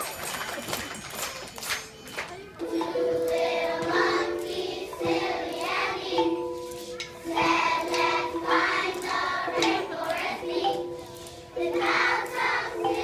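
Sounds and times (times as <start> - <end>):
children singing together: 2.7 - 13.0.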